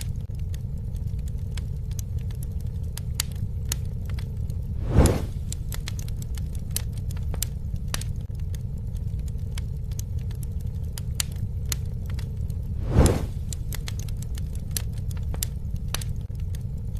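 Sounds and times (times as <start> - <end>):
campfire crackles and pops: 0.0 - 16.9
low rumble of flames: 0.0 - 16.9
rushing noise: 4.8 - 5.5, 12.7 - 13.6.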